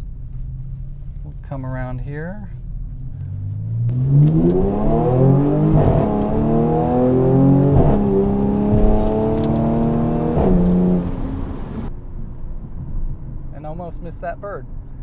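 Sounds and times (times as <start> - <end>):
car engine accelerating hard: 3.2 - 11.9.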